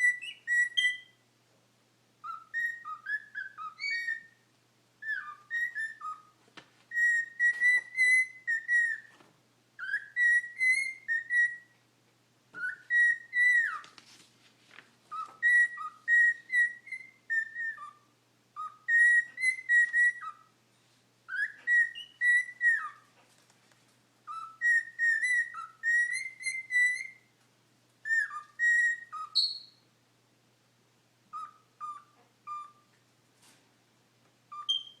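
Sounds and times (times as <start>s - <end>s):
cockatiel whistling: 0.0s - 1.2s, 2.2s - 4.4s, 5.0s - 9.2s, 9.8s - 11.8s, 12.5s - 14.0s, 15.1s - 20.5s, 21.3s - 23.1s, 24.2s - 27.3s, 28.0s - 29.8s, 31.3s - 33.0s, 34.5s - 35.0s.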